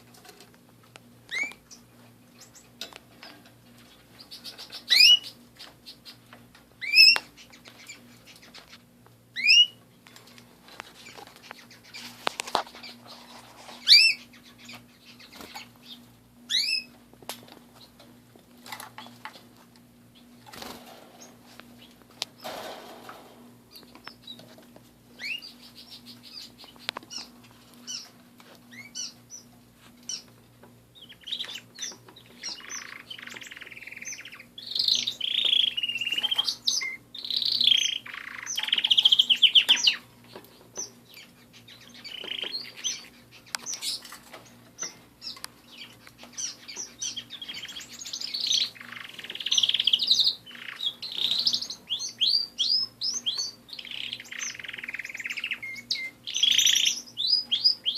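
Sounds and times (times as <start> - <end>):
canaries singing and chirping: 0.0 - 57.9.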